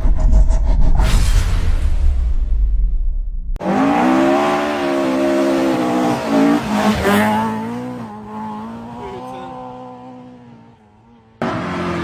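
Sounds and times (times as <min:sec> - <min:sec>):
rally car engine at high revs: 0:03.6 - 0:12.0.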